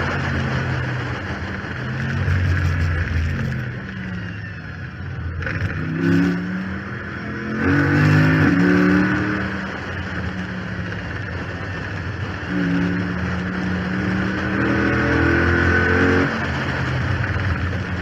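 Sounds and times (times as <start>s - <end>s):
gear upshift: 0.0s - 7.0s
car engine revving: 0.0s - 18.0s
rushing wind: 0.0s - 18.0s.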